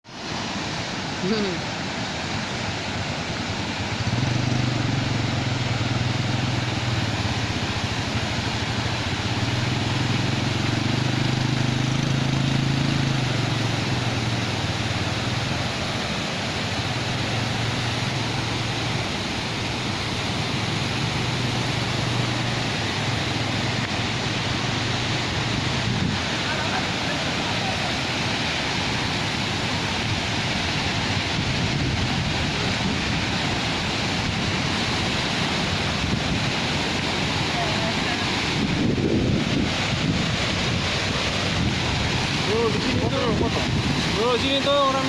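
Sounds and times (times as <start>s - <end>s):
waterfall roaring: 0.0s - 45.0s
low engine-like hum: 3.8s - 26.0s.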